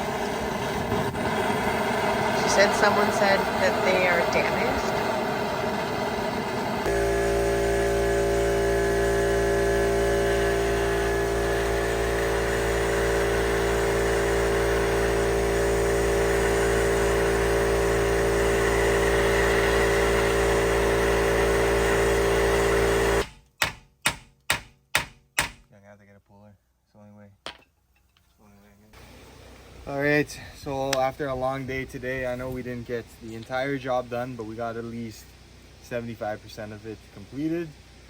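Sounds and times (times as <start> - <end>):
steady drone with fixed tones: 2.2 - 12.1
sharp hammer strikes: 23.2 - 25.7.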